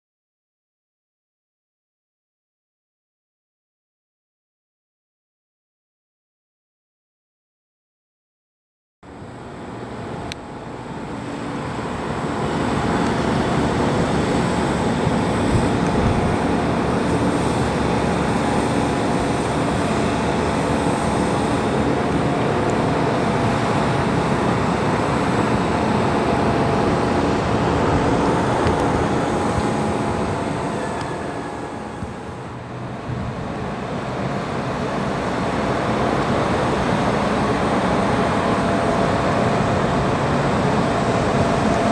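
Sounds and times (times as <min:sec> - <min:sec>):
traffic noise: 0:09.1 - 0:41.9
vehicle engine: 0:09.6 - 0:41.9.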